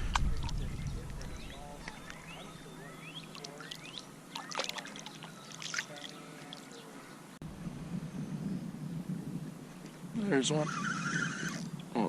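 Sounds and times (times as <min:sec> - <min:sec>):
water splashing and trickling: 0:00.0 - 0:07.4
birds chirping: 0:00.0 - 0:12.0.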